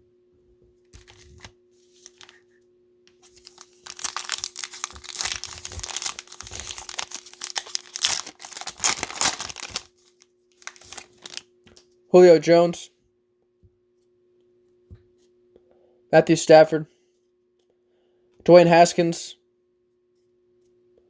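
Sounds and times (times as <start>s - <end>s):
plastic wrapper tearing and crinkling: 0.9s - 2.4s, 3.2s - 11.5s.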